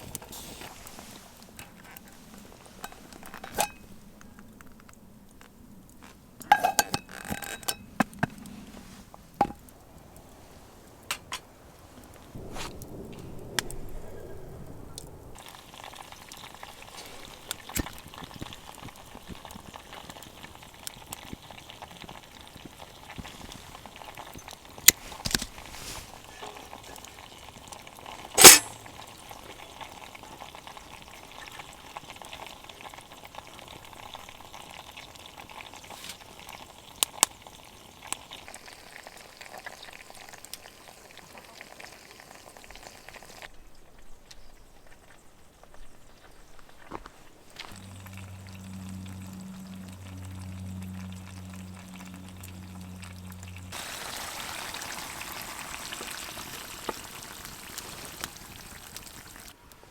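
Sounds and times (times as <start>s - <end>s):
campfire crackling: 0.0s - 44.4s, 46.8s - 59.9s
sharp fire pops: 11.1s - 18.5s, 28.4s - 29.0s.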